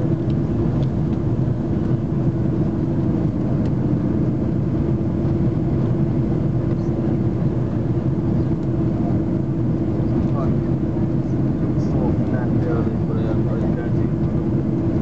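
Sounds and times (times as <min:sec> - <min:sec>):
engine rumble: 0:00.0 - 0:15.0.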